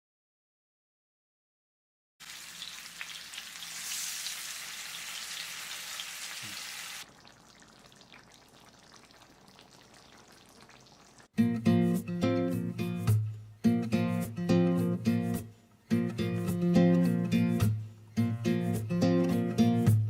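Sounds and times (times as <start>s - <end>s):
fish sizzling in hot oil: 2.2s - 11.3s
acoustic guitar music: 11.4s - 20.0s.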